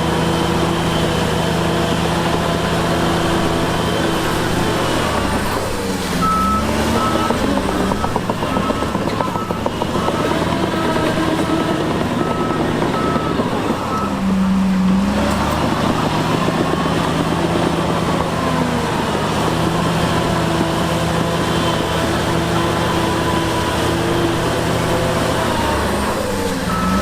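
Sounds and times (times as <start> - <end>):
diesel machinery engine running: 0.0 - 27.0
reversing alarm beeping: 6.2 - 14.9, 26.6 - 27.0.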